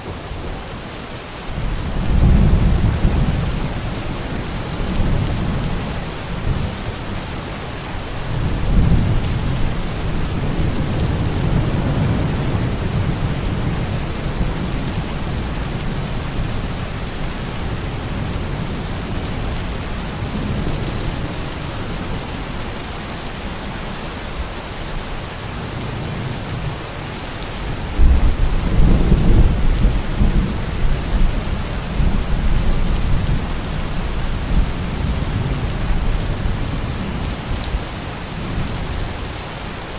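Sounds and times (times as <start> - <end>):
steady rain: 0.0 - 39.9
low thunder rumbles: 1.6 - 7.3, 8.0 - 22.4, 27.6 - 39.1.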